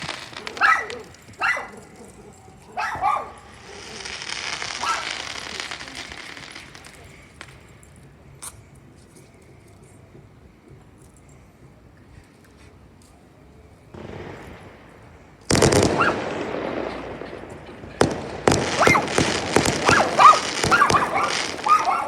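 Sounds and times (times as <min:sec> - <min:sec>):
hissing crackle: 0:00.0 - 0:08.6, 0:14.0 - 0:22.0
dog barking: 0:00.4 - 0:04.0, 0:04.8 - 0:05.2, 0:16.0 - 0:16.2, 0:18.6 - 0:22.0
sharp pops: 0:15.4 - 0:22.0.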